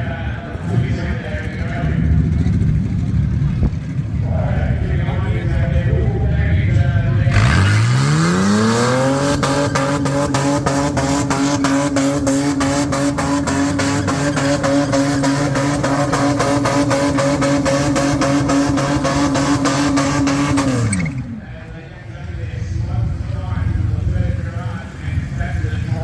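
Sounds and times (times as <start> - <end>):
car engine revving: 7.0 - 21.8.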